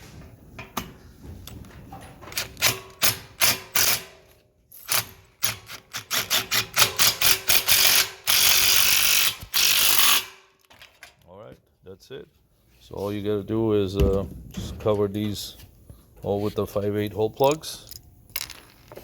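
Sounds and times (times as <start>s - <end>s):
power drill driving screws: 5.7s - 10.4s.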